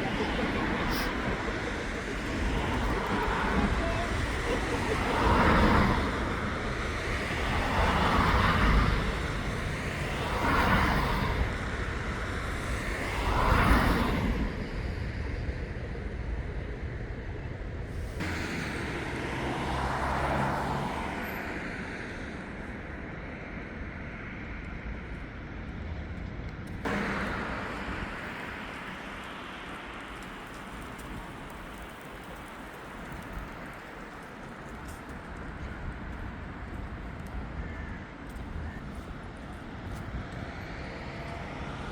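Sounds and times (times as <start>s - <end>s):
cars passing: 0.0s - 24.3s, 26.8s - 41.9s
background traffic hum: 0.0s - 41.9s.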